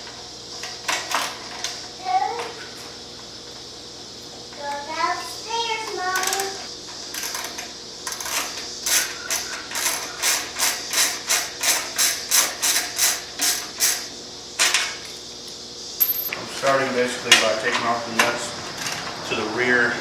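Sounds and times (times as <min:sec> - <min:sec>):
ratchet wrench clicking: 0:16.0 - 0:16.4.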